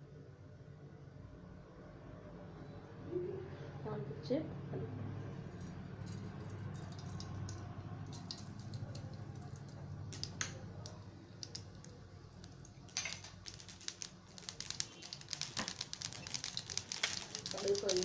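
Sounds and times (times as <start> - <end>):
seeds popping in hot oil: 5.6 - 18.0.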